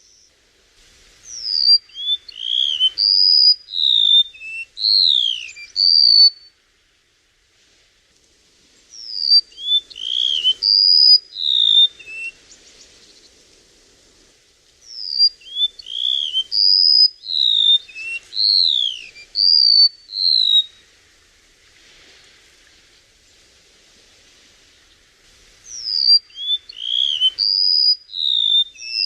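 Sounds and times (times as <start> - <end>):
bird singing high whistled notes: 1.2 - 6.5, 8.9 - 12.4, 14.9 - 20.8, 25.6 - 29.0.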